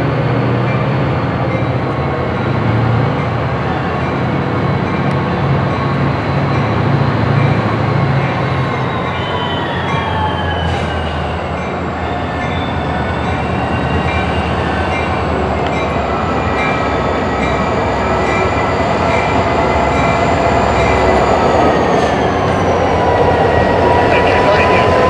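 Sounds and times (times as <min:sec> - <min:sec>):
freight cars rumbling: 0:00.0 - 0:25.0
train wheels squealing: 0:07.4 - 0:23.2.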